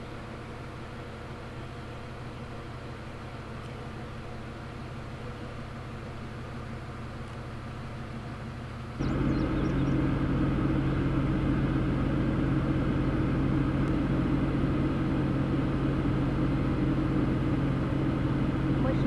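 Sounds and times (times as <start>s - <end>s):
motor vehicle drone: 8.9s - 19.0s.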